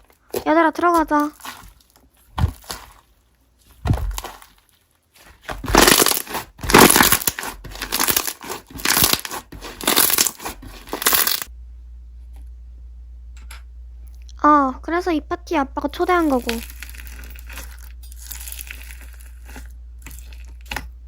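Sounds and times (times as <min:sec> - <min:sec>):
slime crackling when squeezed: 0:03.7 - 0:11.5, 0:16.1 - 0:20.7.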